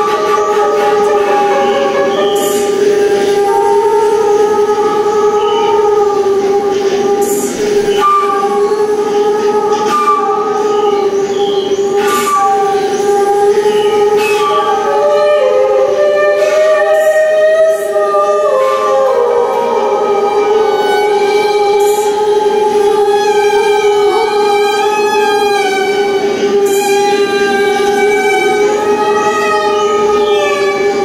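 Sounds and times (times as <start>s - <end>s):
slow droning violin music: 0.0s - 31.0s.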